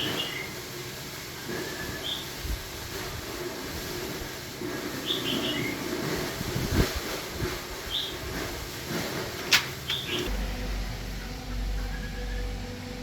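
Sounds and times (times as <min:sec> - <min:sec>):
small bird chirping: 0:09.8 - 0:10.3.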